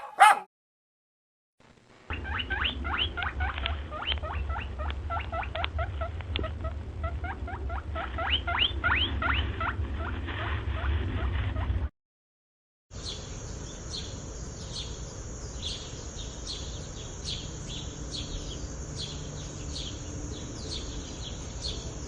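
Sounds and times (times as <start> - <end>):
small animal squeaking: 2.1 - 10.1.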